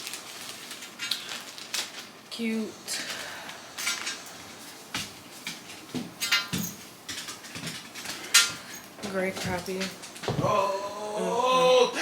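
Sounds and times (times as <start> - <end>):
plastic packaging crinkling: 0.0 - 2.3.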